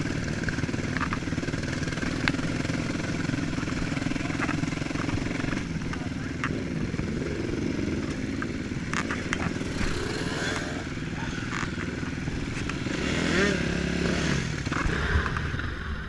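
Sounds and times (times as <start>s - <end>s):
motocross bike engines revving: 0.0s - 16.0s
sharp clicks and clatters: 0.1s - 6.8s, 8.0s - 10.7s.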